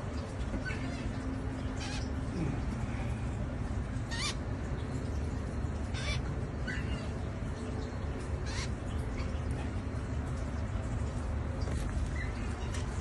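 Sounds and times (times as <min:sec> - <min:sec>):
baby bird cheeping: 0:04.1 - 0:04.4.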